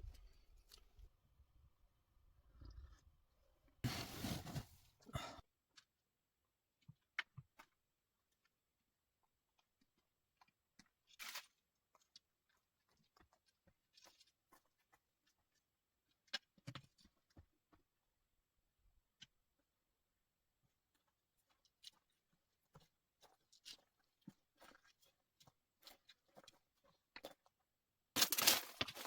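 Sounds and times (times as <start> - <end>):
soft knocks or rustles: 3.9 - 4.8.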